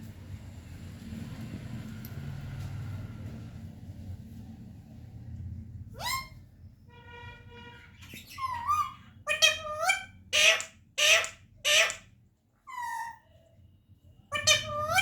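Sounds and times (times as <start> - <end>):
parrot squawking: 5.9 - 6.4, 7.9 - 12.1, 12.7 - 13.2, 14.3 - 15.0.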